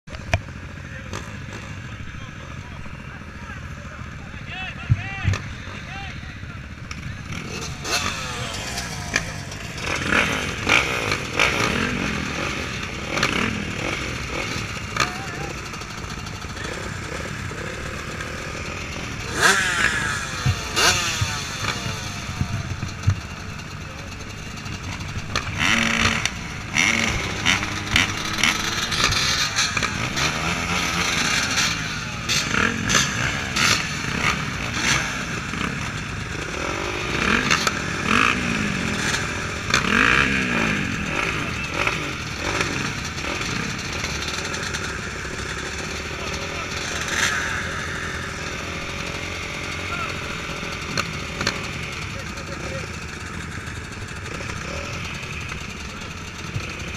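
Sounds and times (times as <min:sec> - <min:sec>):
motocross bike engines revving: 0:00.1 - 0:56.9.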